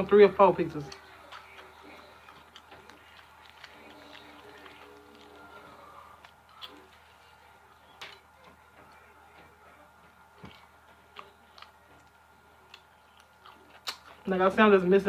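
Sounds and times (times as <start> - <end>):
mouth clicks and smacks chewing: 0.9 - 7.1, 10.4 - 14.3.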